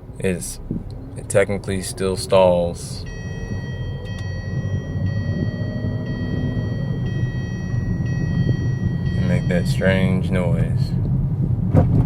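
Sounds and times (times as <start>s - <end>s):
engine and road rumble: 0.0s - 12.0s
steady high tones: 3.0s - 11.0s.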